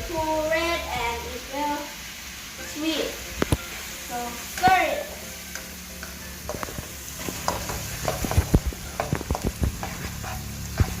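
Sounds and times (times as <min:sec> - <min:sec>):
sauce sizzling in a pan: 0:00.0 - 0:11.0
utensil scraping a pan: 0:06.5 - 0:11.0.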